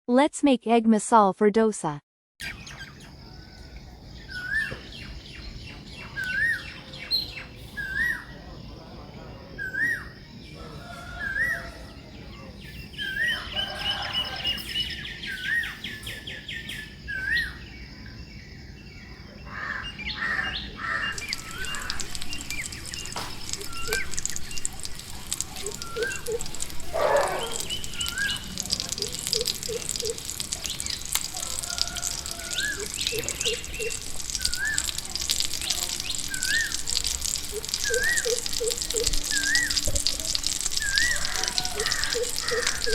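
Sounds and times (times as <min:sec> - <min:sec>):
bird chirps and trills: 0:04.2 - 0:08.4, 0:19.5 - 0:39.9.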